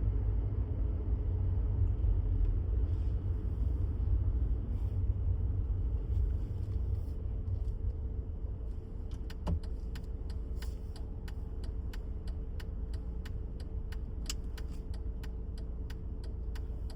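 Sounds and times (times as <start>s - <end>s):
faint constant hum: 0.0s - 16.9s
low engine rumble: 0.0s - 16.9s
regular ticking: 9.3s - 16.9s.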